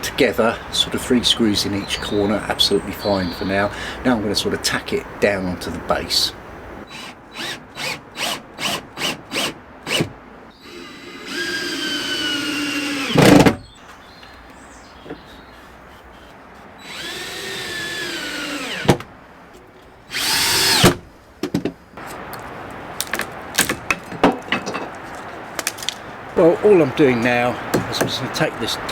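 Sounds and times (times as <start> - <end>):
cordless drill driving screws: 6.9 - 13.5, 16.8 - 19.0, 20.1 - 21.0.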